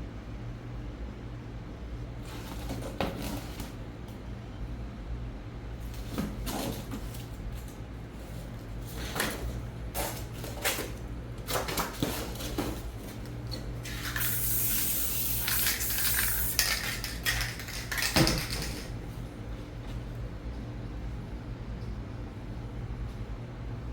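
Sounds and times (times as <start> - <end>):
spray-paint can hissing: 13.9 - 18.1
clinks and knocks: 16.6 - 19.0.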